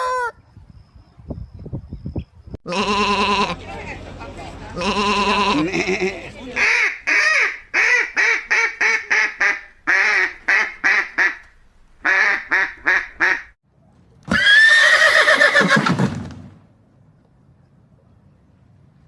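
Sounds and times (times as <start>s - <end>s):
waterfowl calls: 2.7s - 8.7s
horse whinnying: 14.3s - 16.0s.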